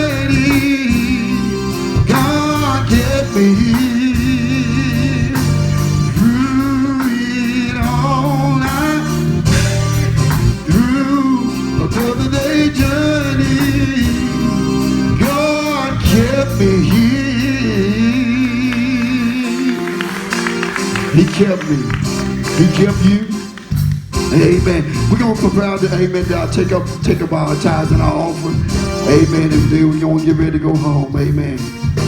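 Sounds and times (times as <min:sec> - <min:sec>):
person singing with vibrato: 0:00.0 - 0:09.8, 0:10.4 - 0:23.6
instrumental accompaniment: 0:00.0 - 0:32.0.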